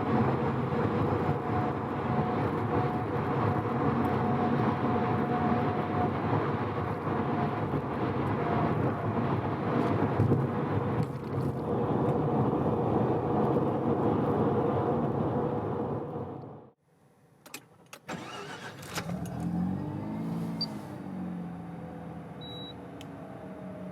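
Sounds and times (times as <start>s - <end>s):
tyre and wind noise: 0.0s - 16.0s.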